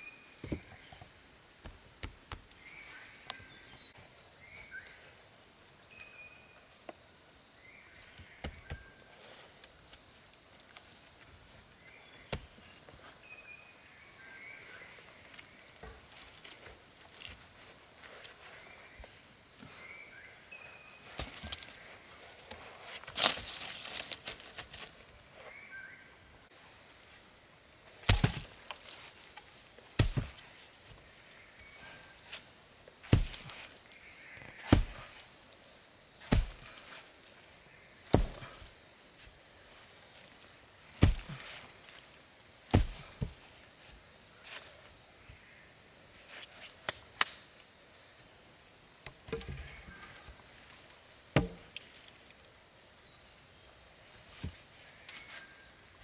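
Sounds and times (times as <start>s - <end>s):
axe chopping wood: 28.0s - 28.8s, 30.0s - 30.4s, 33.1s - 33.6s, 34.7s - 35.2s, 36.3s - 36.8s, 38.1s - 38.7s, 41.0s - 41.5s, 42.7s - 43.4s, 51.4s - 51.7s.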